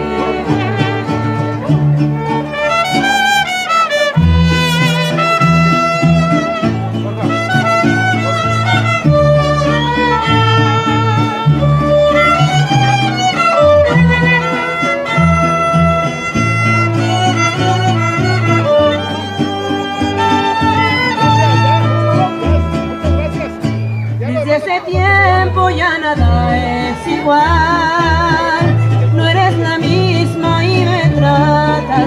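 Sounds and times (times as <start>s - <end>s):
strummed guitar: 0.0s - 32.0s
violins with vibrato: 0.0s - 32.0s
pulsing bass line: 4.2s - 24.4s.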